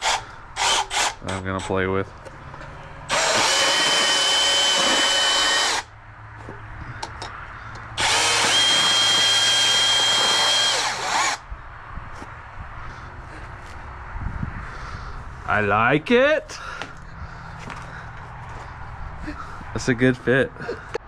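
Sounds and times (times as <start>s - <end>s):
power bandsaw cutting: 0.0s - 1.7s, 3.1s - 5.9s, 8.0s - 11.4s.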